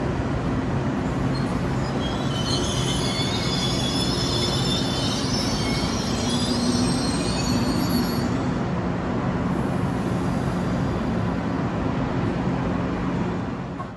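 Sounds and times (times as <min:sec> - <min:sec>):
train low hum and rumble: 0:00.0 - 0:13.9
train wheels and brakes squealing: 0:00.9 - 0:11.7.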